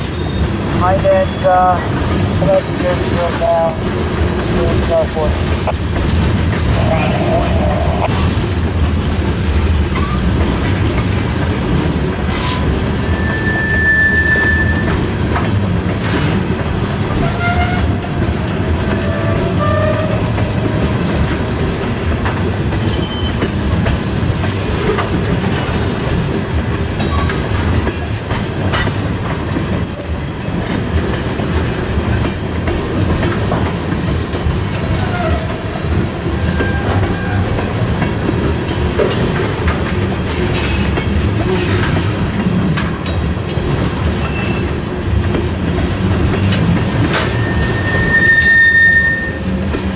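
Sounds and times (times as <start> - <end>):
train wheels clattering: 0.0 - 49.9
wheels squealing: 12.3 - 15.0, 18.7 - 20.4, 22.8 - 23.5, 44.2 - 44.8, 47.1 - 49.6.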